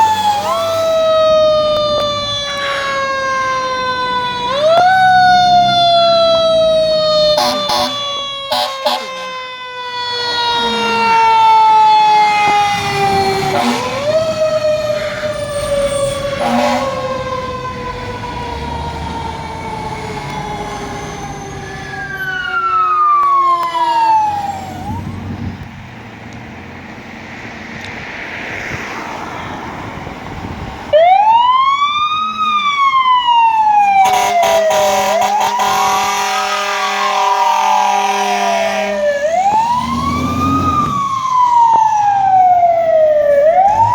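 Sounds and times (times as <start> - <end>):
siren wailing up and down: 0.0 - 25.4, 30.9 - 43.9
siren winding down: 0.0 - 25.4, 30.9 - 43.9
air horn blaring: 7.3 - 9.4, 13.4 - 14.3, 16.2 - 17.2, 34.0 - 41.0.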